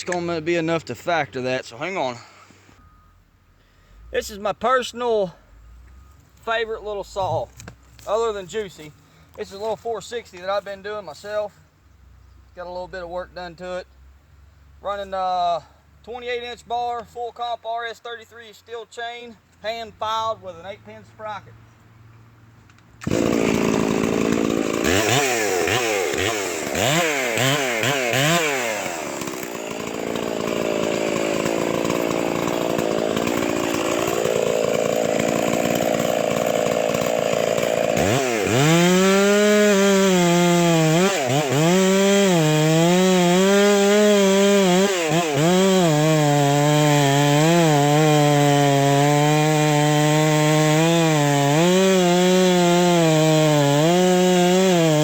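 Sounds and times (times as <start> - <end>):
chainsaw revving: 23.0 - 55.0.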